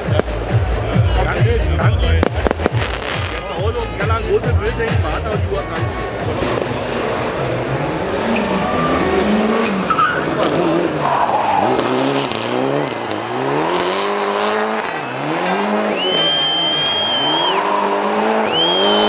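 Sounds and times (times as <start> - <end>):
rally car engine revving: 0.0 - 19.0
tyres skidding: 0.0 - 19.0
high steady squeal: 8.1 - 12.3.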